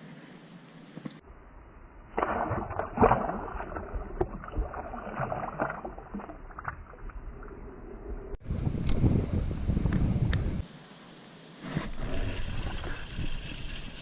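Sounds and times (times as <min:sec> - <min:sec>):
water splashing around kayak: 0:02.1 - 0:07.6.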